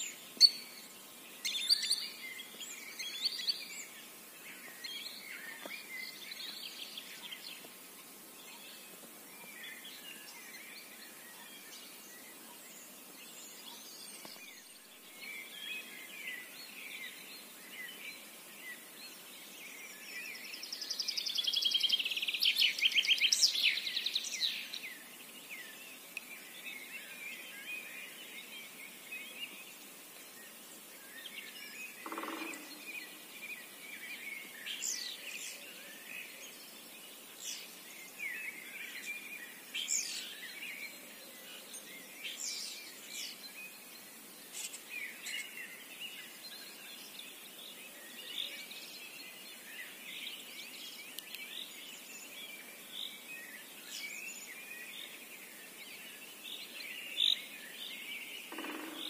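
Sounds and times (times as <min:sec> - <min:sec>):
small birds chirping and trilling: 0:00.0 - 0:59.0.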